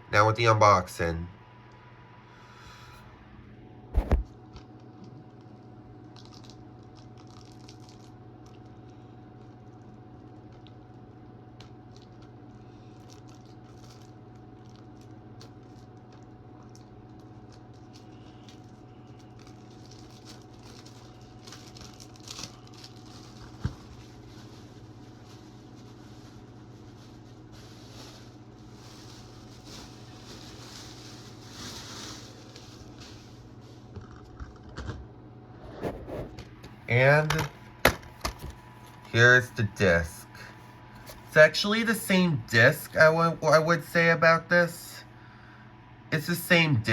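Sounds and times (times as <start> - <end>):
steady hum: 0.0 - 46.9
clicks and crinkling wrapping: 4.0 - 35.0.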